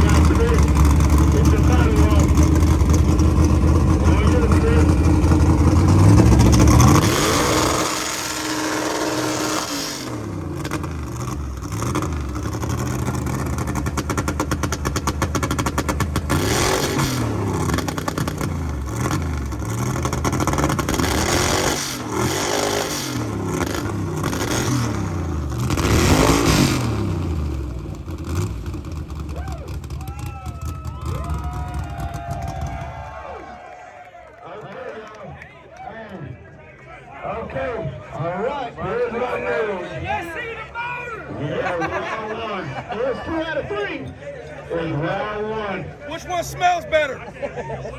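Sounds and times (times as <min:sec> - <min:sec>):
car engine revving: 0:00.0 - 0:33.2.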